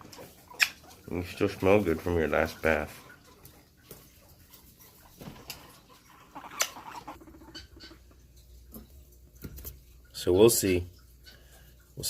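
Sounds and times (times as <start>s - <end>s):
guinea pig trill: 5.5s - 8.2s.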